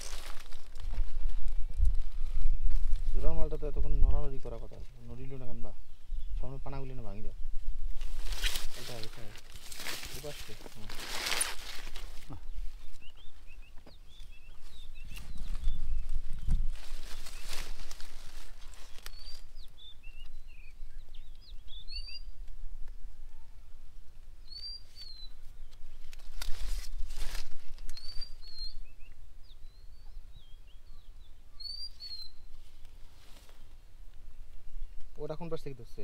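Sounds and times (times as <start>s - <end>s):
rustling: 0.0s - 3.3s, 7.9s - 13.5s, 14.2s - 19.6s, 25.7s - 28.6s, 32.5s - 34.2s
small birds chirping: 0.0s - 36.0s.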